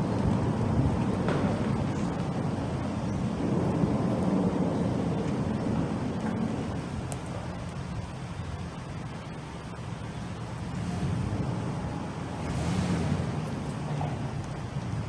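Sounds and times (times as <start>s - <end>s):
road traffic rumbling: 0.0s - 15.0s
vehicle passing: 10.6s - 15.0s.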